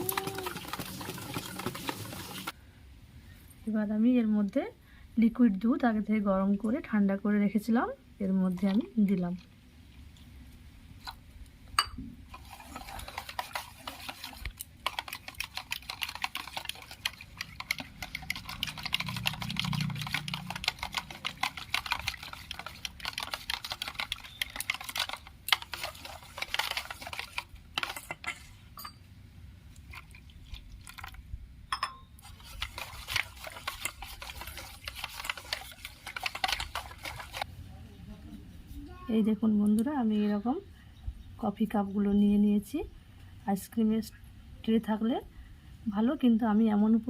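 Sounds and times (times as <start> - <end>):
utensil whisking in a bowl: 0.0 - 2.6, 12.3 - 28.5, 29.9 - 31.2, 32.2 - 37.5
utensil clicking against bowl: 14.2 - 27.9.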